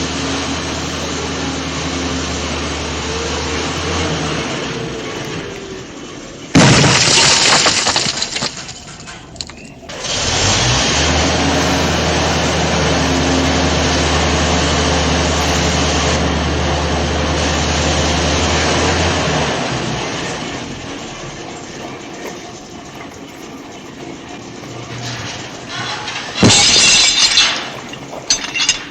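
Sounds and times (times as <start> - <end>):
engine running with low hum: 0.0 - 28.9
loud crash: 2.2 - 12.1, 25.0 - 28.9.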